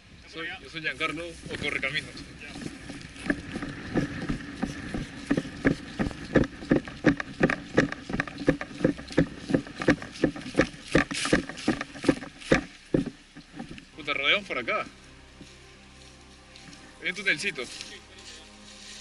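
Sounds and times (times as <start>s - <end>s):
footsteps on dry vegetation: 0.4s - 19.0s
gear jostling: 1.0s - 14.1s.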